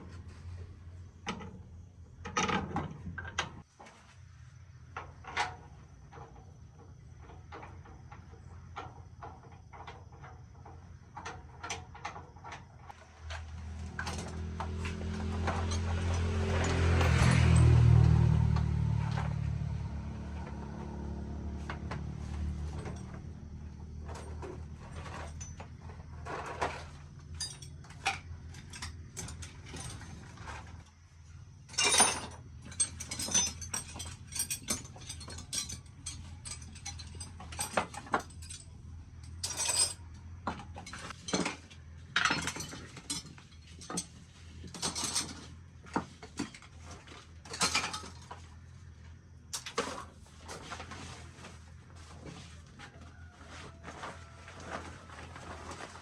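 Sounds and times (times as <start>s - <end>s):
low engine hum: 12.9s - 39.5s
hand tools clinking on metal: 13.5s - 19.3s, 22.2s - 30.7s, 31.7s - 46.6s, 47.5s - 48.4s.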